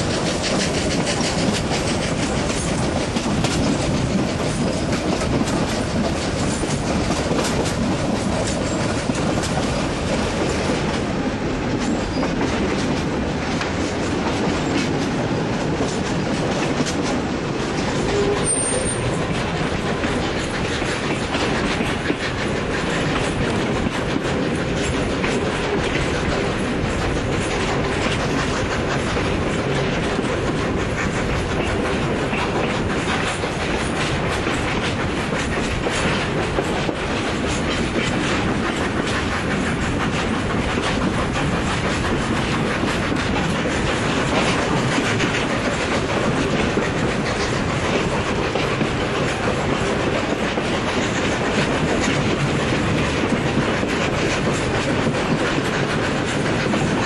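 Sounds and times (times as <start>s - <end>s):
train carriages rumbling: 0.0s - 57.0s
wheels clicking over rail joints: 0.0s - 57.0s.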